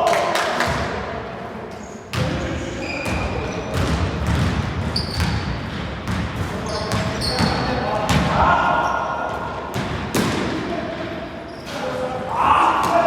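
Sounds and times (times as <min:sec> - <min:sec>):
basketball bouncing on court: 0:03.0 - 0:08.6, 0:09.3 - 0:10.5.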